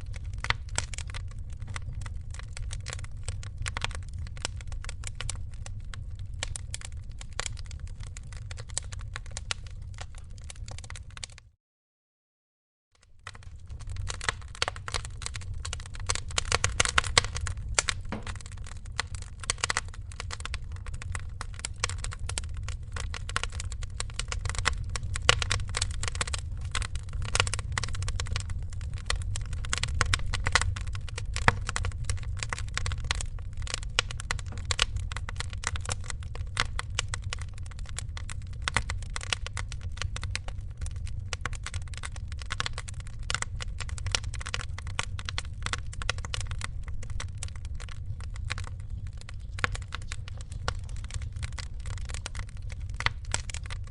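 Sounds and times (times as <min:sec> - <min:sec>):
fire crackling and popping: 0:00.0 - 0:11.6, 0:13.0 - 0:53.9
low steady rumble: 0:13.3 - 0:53.9.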